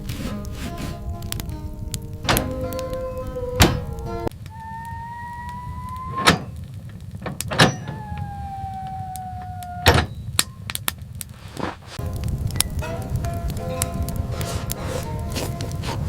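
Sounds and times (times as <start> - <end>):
low wind rumble: 0.0 - 16.0
wolf howling: 2.5 - 6.6, 7.8 - 10.0.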